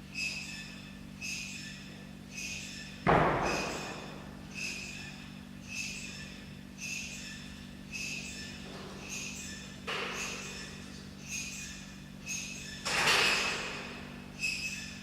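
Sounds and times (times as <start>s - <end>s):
heavy thump: 3.1s - 4.2s.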